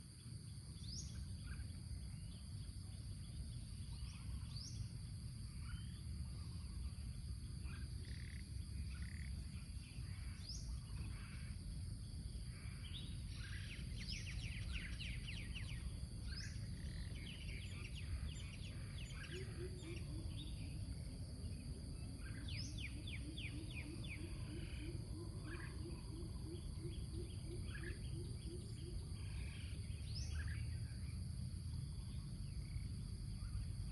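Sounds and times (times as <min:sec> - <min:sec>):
birds calling and singing: 0:12.2 - 0:20.8.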